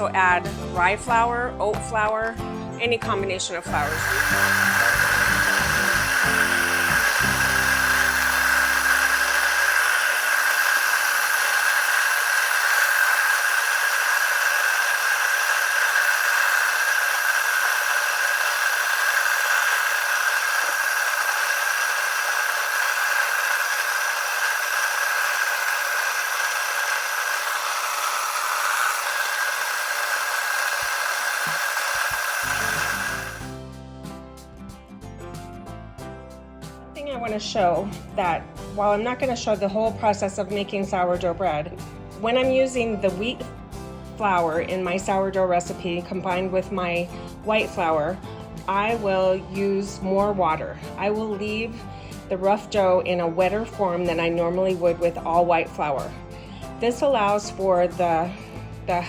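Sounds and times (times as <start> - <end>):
grain mill whining: 3.5 - 33.6.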